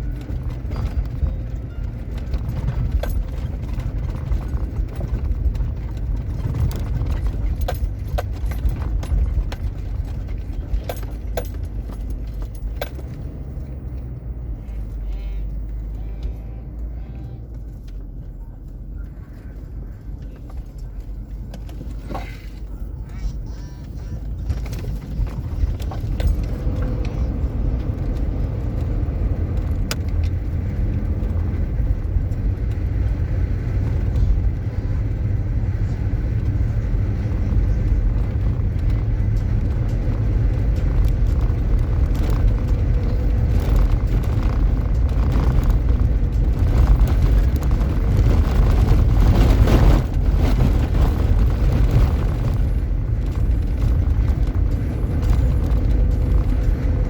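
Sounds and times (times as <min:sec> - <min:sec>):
clicks and rattles: 0:00.0 - 0:14.2, 0:35.8 - 0:57.0
vehicle rumble: 0:00.0 - 0:57.0.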